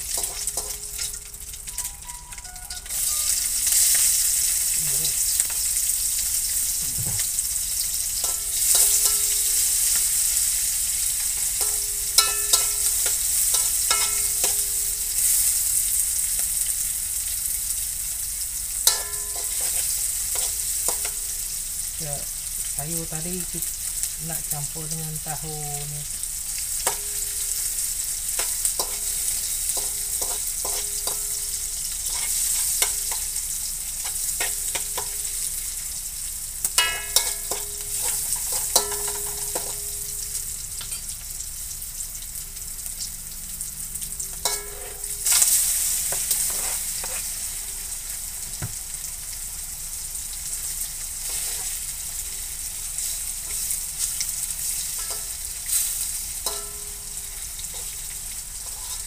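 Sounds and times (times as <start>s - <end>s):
food sizzling in hot oil: 0.0s - 59.0s
metal ladle scraping and tapping pan: 0.1s - 3.0s, 8.2s - 10.1s, 11.2s - 15.3s, 18.9s - 21.3s, 26.8s - 27.5s, 28.4s - 33.3s, 34.0s - 35.3s, 36.6s - 41.0s, 44.3s - 47.4s, 55.0s - 55.9s, 56.5s - 59.0s.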